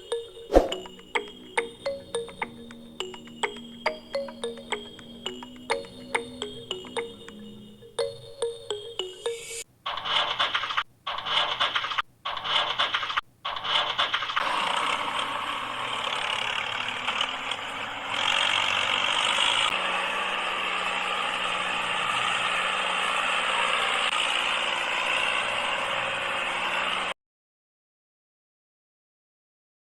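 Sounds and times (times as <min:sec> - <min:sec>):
small motor rattling: 0:13.7 - 0:27.1.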